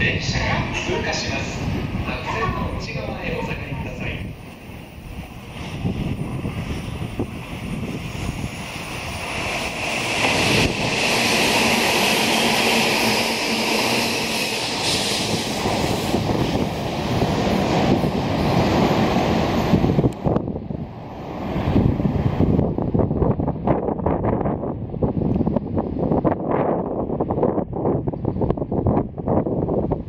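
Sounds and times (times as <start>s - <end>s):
train wheels rushing on rail: 0.0s - 30.0s.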